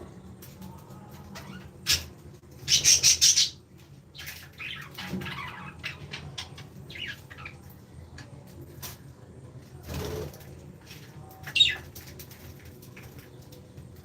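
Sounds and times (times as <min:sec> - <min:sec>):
birds flapping wings: 0:09.8 - 0:14.0.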